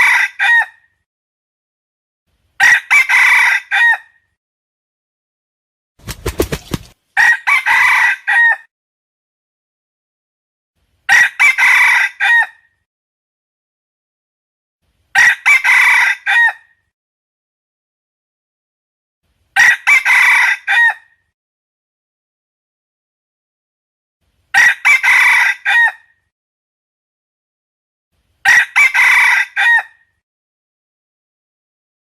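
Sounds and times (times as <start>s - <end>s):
rooster crowing: 0.0s - 0.8s, 2.6s - 4.2s, 7.2s - 8.7s, 11.1s - 12.6s, 15.2s - 16.7s, 19.6s - 21.1s, 24.6s - 26.1s, 28.4s - 30.0s.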